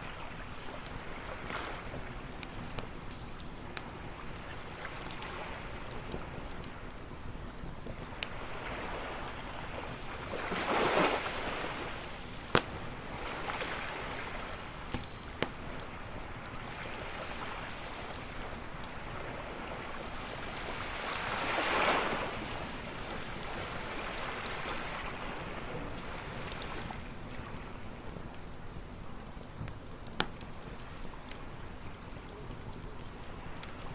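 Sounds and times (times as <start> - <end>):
waves washing onto a beach: 0.0 - 29.7
campfire crackling: 0.0 - 33.9
sharp fire pops: 12.4 - 17.2, 29.5 - 33.9.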